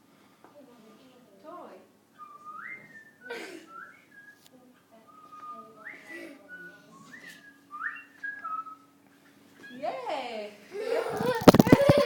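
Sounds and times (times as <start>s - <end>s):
whistled phrases: 2.1s - 9.0s, 9.6s - 9.9s.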